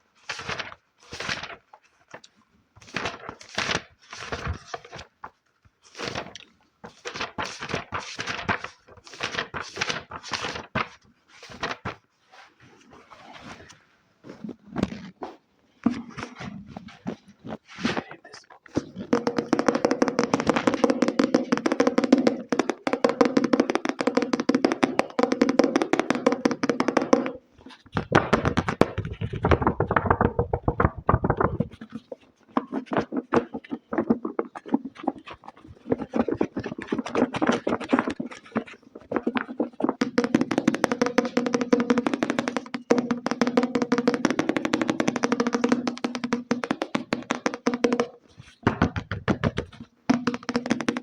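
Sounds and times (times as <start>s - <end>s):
rapid tapping on hard object: 18.8s - 51.0s.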